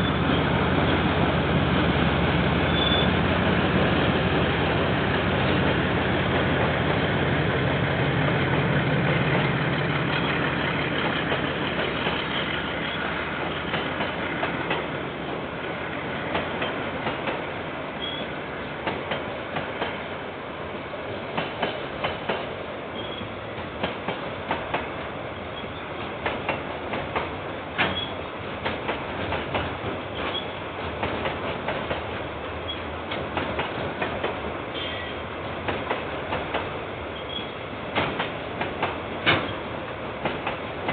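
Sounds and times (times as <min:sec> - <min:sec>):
diesel locomotive engine: 0:00.0 - 0:40.9
train wheels clacking on rail joints: 0:09.0 - 0:15.0, 0:16.2 - 0:20.0, 0:21.3 - 0:40.9.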